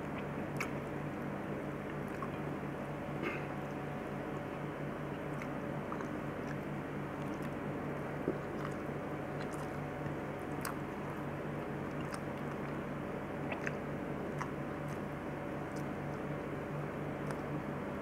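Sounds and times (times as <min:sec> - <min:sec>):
person chewing: 0:00.0 - 0:02.4, 0:05.1 - 0:11.2, 0:11.8 - 0:16.3, 0:17.2 - 0:17.6
low steady hum: 0:00.0 - 0:18.0.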